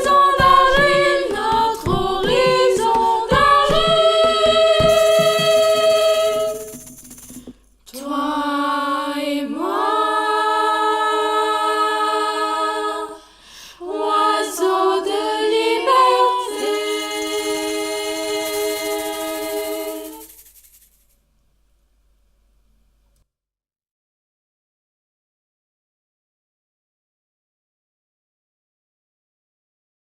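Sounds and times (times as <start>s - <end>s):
teenagers singing a cappella: 0.0s - 6.8s, 7.9s - 20.4s.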